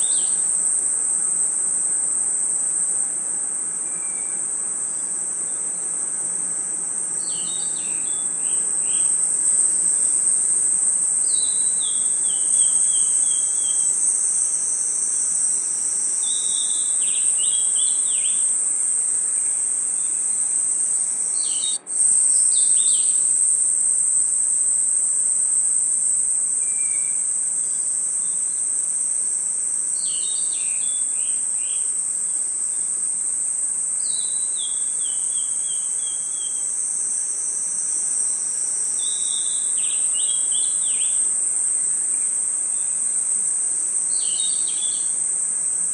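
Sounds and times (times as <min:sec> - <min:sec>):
crickets trilling: 0:00.0 - 0:45.9
descending bird-like chirps: 0:21.3 - 0:21.8.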